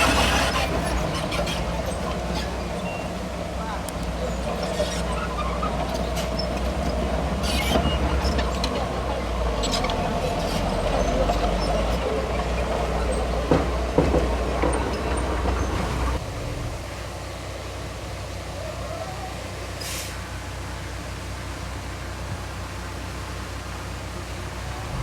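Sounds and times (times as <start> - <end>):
machine clanking: 0.0 - 16.2
bulldozer diesel engine running: 0.0 - 18.6.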